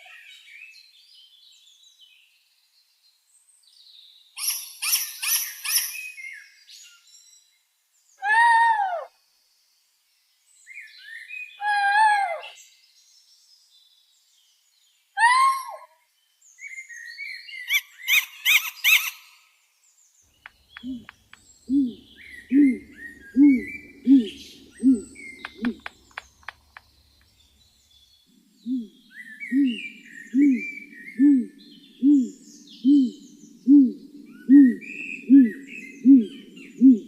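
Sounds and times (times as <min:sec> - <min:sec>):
loud arching bird calls: 0:20.3 - 0:37.0
fast chattering bird trills: 0:20.4 - 0:27.4.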